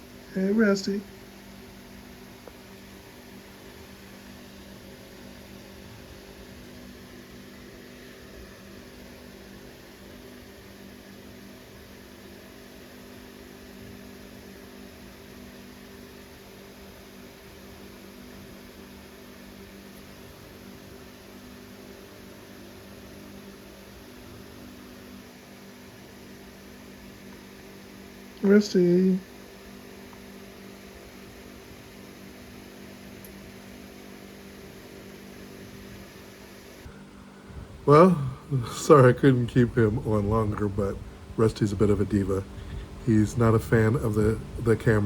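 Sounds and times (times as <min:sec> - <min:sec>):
low electrical hum: 0:00.0 - 0:45.0
faint hiss: 0:35.7 - 0:45.0.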